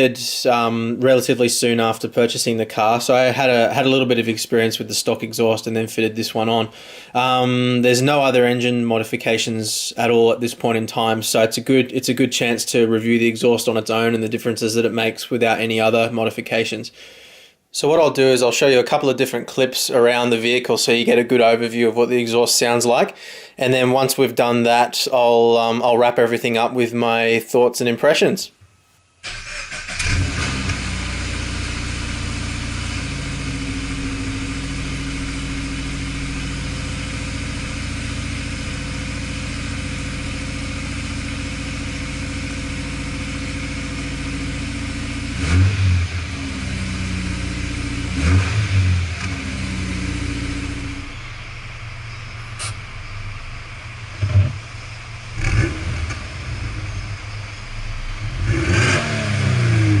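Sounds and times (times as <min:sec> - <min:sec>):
engine revving in throttle blips: 0:29.3 - 0:41.3, 0:42.0 - 1:00.0
car engine idling: 0:29.3 - 1:00.0.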